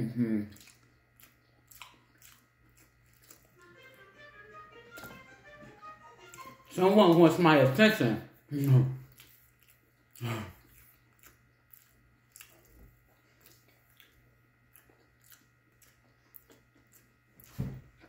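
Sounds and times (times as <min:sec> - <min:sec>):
wet chewing clicks: 0:00.5 - 0:04.0, 0:08.5 - 0:17.6.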